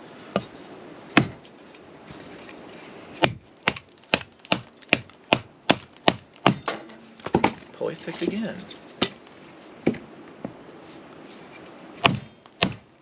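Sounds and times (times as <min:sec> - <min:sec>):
axe chopping wood: 0:01.2 - 0:01.4, 0:03.2 - 0:07.6, 0:12.0 - 0:12.9.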